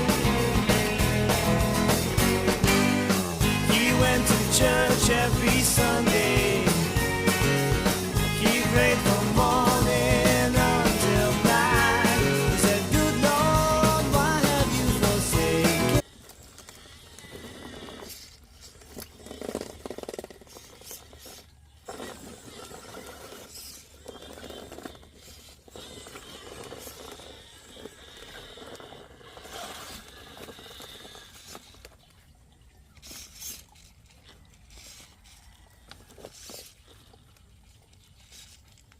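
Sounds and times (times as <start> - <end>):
rc car scraping and rustling: 15.4 - 32.1, 32.9 - 38.9.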